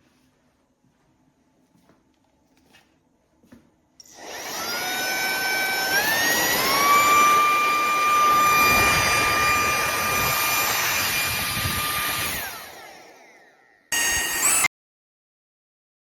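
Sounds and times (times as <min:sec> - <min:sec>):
handheld vacuum cleaner whine: 0:04.0 - 0:14.7.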